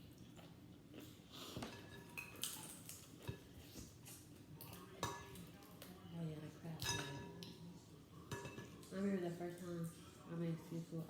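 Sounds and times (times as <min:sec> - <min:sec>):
chewing food: 0:00.0 - 0:06.0.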